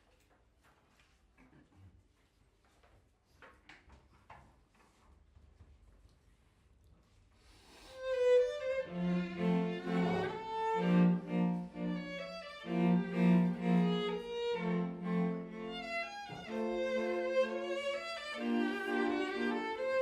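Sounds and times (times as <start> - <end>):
cellos and basses low notes: 8.0 - 20.0
violins playing melody: 8.0 - 20.0.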